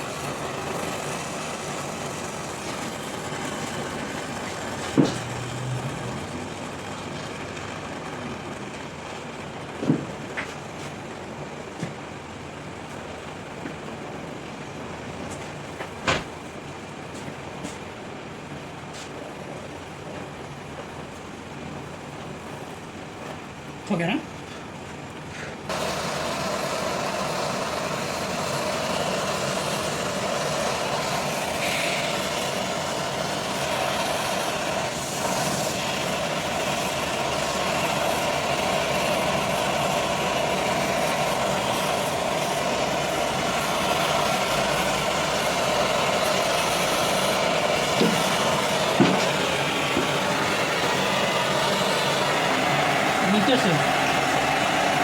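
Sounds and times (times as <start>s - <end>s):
torch flame hissing: 0.0s - 13.6s, 25.3s - 55.0s.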